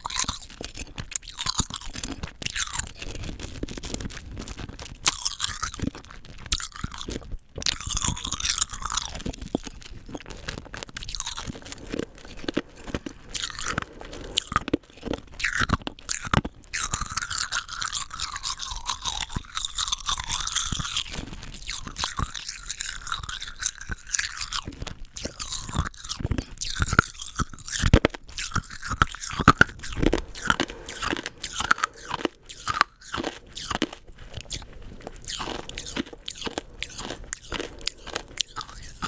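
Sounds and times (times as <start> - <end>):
crunching rock candy: 0.0 - 39.0
wet mouth sounds: 0.0 - 39.0.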